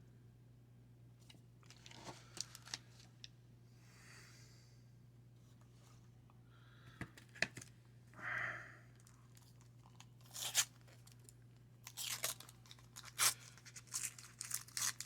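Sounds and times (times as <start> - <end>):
wax paper wrapper crinkling: 1.6 - 3.3, 9.0 - 15.0.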